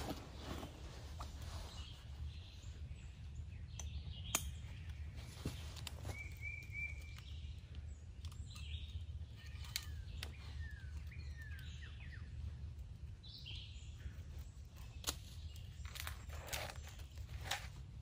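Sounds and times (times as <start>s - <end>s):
woodland birds whistling: 1.4s - 12.6s.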